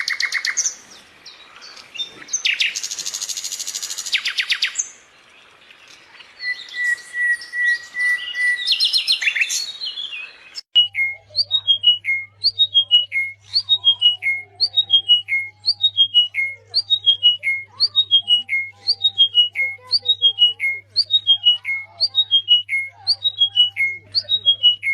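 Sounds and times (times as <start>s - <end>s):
small songbirds chirping: 0.0s - 24.9s
bird singing descending phrase: 10.8s - 24.9s
bird whistling steady note: 10.8s - 24.9s.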